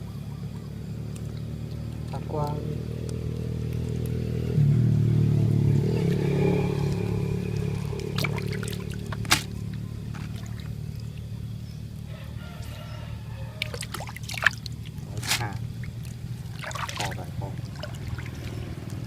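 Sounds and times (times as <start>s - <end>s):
small engine running: 0.0s - 13.4s
water trickling: 5.9s - 19.0s.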